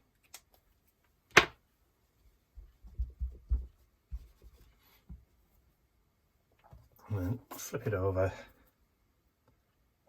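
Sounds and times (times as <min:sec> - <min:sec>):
soft knocks and rubs on table: 0:02.6 - 0:05.4.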